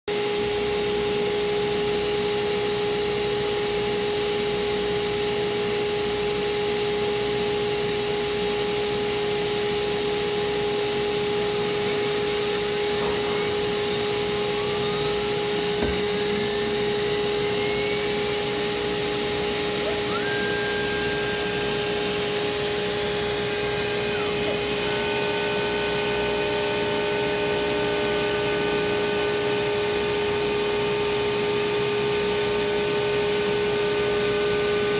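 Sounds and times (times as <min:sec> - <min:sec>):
cnc router spindle whine: 0:00.2 - 0:34.9
steady tones: 0:11.4 - 0:26.3.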